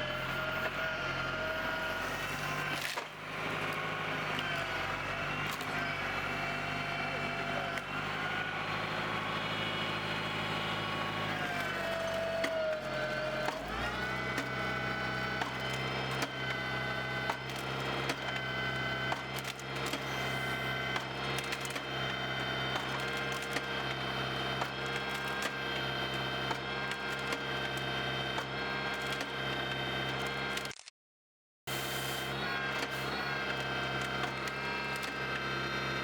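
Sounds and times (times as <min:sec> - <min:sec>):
tractor engine under load: 0:00.0 - 0:30.7, 0:32.3 - 0:36.0
wood cracking and splintering: 0:02.6 - 0:04.7, 0:05.4 - 0:05.8.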